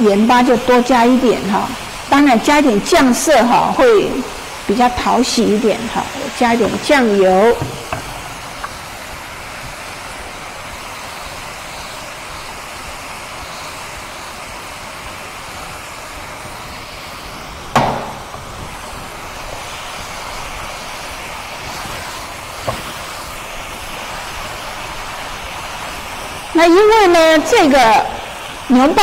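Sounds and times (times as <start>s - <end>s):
vegetables sizzling in frying pan: 0.0s - 29.0s
sharp knock: 17.7s - 18.4s.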